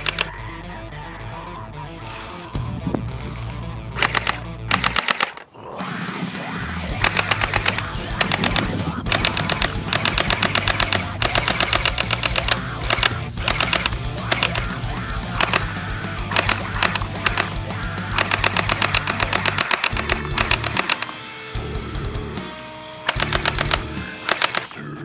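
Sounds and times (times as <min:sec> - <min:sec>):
rapid automatic gunfire: 0:00.0 - 0:00.3, 0:03.4 - 0:05.5, 0:07.0 - 0:21.3, 0:23.1 - 0:24.8
background music: 0:00.0 - 0:25.0.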